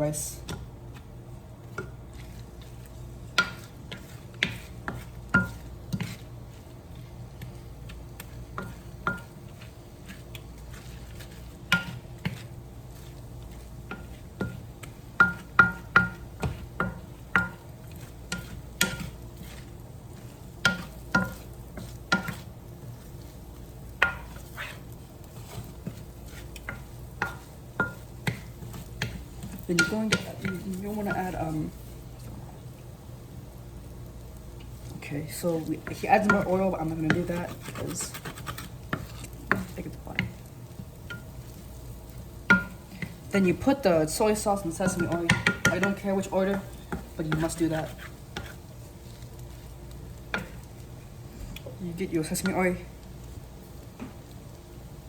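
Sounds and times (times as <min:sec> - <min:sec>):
rice sizzling faintly: 0:00.0 - 0:55.0
metal spatula scraping a pan: 0:35.8 - 0:40.2.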